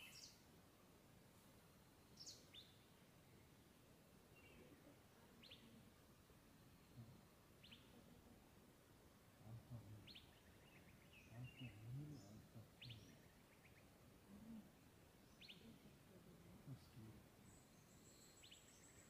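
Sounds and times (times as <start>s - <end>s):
bird chirps: 0.0s - 0.4s, 10.0s - 13.9s, 15.2s - 15.8s, 17.4s - 19.0s.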